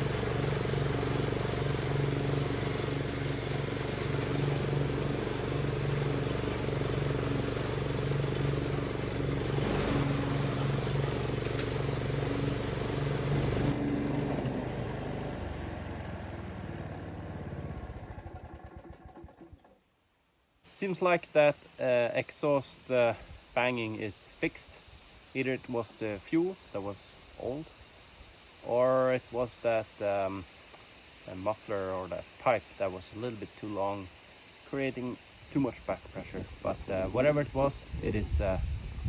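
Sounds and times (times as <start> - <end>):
lawnmower engine running: 0.0 - 19.8, 35.8 - 39.0.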